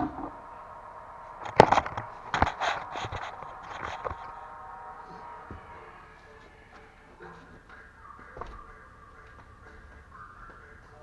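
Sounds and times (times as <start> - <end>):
tools and parts knocking: 0.0 - 0.4.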